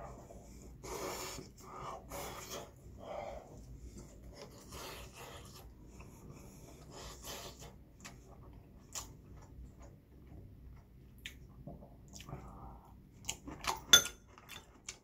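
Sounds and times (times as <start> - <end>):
person chewing food: 7.0 - 15.0.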